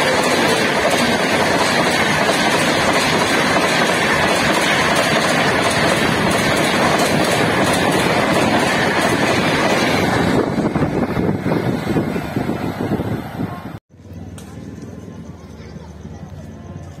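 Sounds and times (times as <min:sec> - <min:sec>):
wheels clacking over rail joints: 0:00.0 - 0:11.7
passenger train passing at speed: 0:00.0 - 0:17.0.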